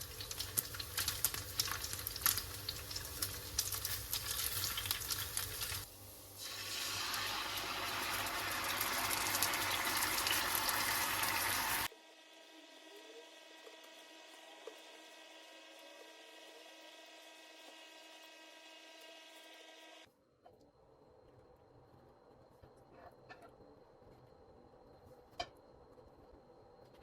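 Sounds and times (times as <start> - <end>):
food frying and sizzling: 0.0 - 20.1.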